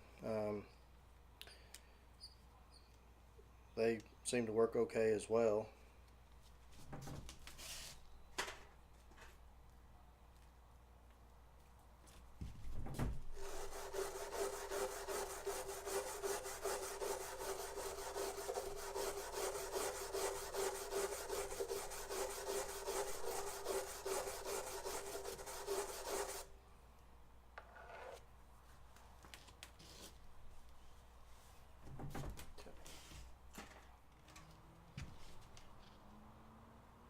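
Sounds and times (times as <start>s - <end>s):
abrasive rasping on plastic: 13.4s - 26.4s.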